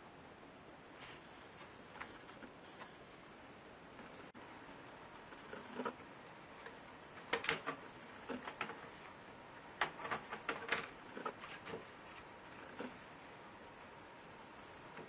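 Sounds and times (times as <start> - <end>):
laptop parts clicking and knocking: 7.2 - 9.0, 9.8 - 11.9.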